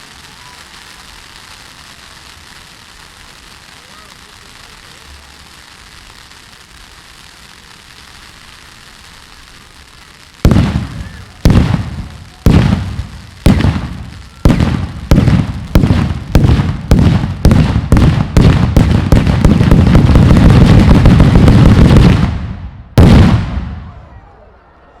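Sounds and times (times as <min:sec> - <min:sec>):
fireworks bangs: 0:00.0 - 0:24.4.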